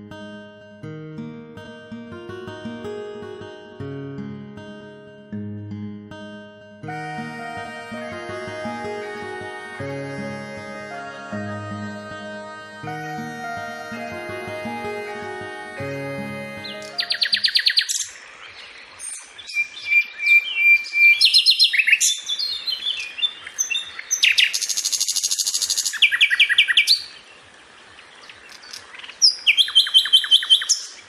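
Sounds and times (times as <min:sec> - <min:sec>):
music: 0:00.0 - 0:17.8
birds singing trills: 0:16.6 - 0:31.0.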